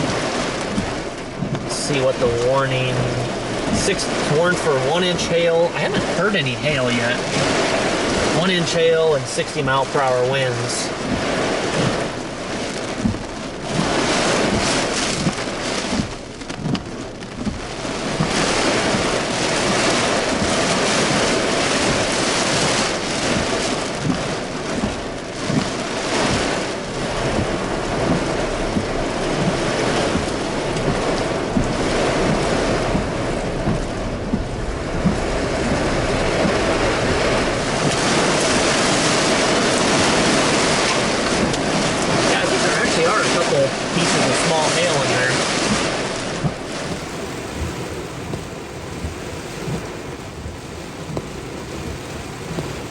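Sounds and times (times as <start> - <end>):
heavy rain pouring: 0.0 - 52.9
hail striking hard surfaces: 45.1 - 52.9.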